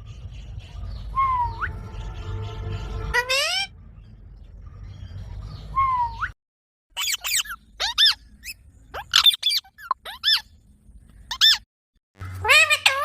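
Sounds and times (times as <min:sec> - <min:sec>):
parrot squawking shrilly: 0:03.0 - 0:03.7, 0:07.0 - 0:10.4, 0:11.3 - 0:11.6, 0:12.4 - 0:13.0.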